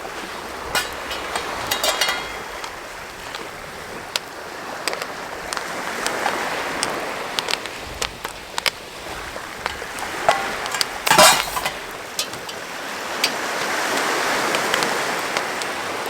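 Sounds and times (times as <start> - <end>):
pot rattle: 0.2 - 3.4, 9.6 - 13.4
popcorn popping: 0.7 - 2.8, 9.6 - 12.7.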